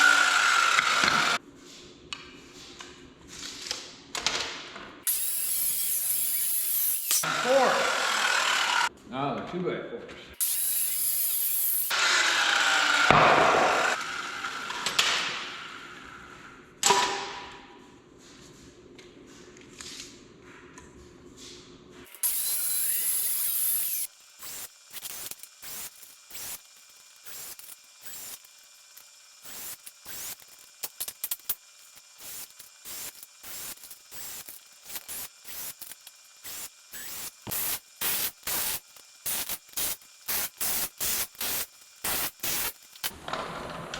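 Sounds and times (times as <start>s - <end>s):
tool bursts: 5.1s - 8.9s, 22.1s - 43.1s.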